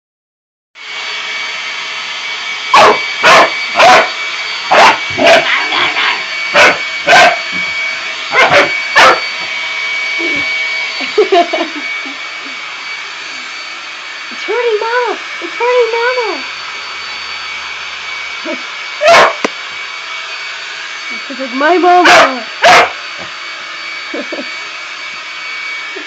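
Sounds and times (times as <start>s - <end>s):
blow dryer whining hiss: 0.8s - 26.0s
dog barking: 2.7s - 7.5s, 8.3s - 9.2s, 19.0s - 19.4s, 22.0s - 23.0s
dog yelping: 2.7s - 7.6s, 8.3s - 9.4s, 19.0s - 19.4s, 22.0s - 23.0s.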